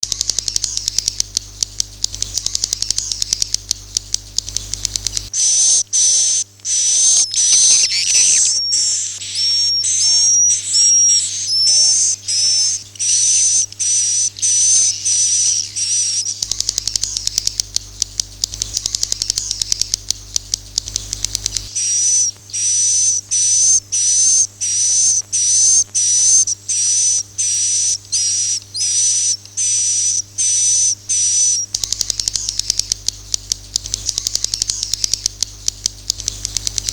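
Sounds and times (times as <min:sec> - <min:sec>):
rapid clicking: 0:00.0 - 0:05.4, 0:13.0 - 0:21.8, 0:31.2 - 0:36.9
high buzzy bird chirps: 0:00.0 - 0:36.9.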